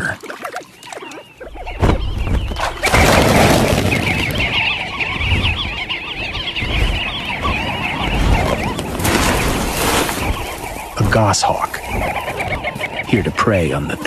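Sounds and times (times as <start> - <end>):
flock of birds chattering: 0.0 - 14.0.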